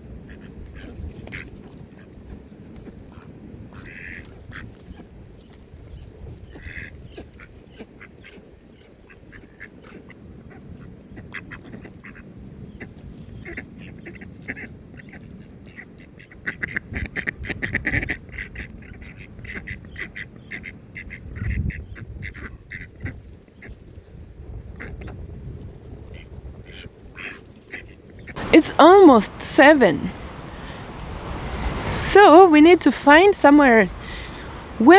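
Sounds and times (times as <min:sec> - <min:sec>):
ducks quacking: 0:33.9 - 0:34.8.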